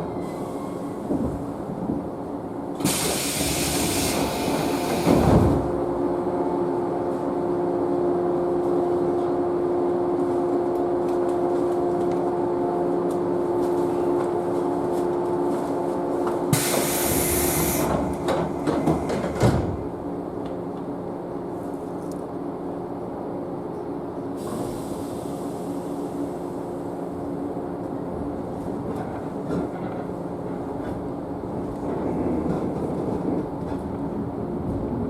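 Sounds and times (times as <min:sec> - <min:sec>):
electric train machinery hum: 0:00.0 - 0:35.0
sliding doors clunking shut: 0:02.8 - 0:05.8, 0:16.5 - 0:19.9.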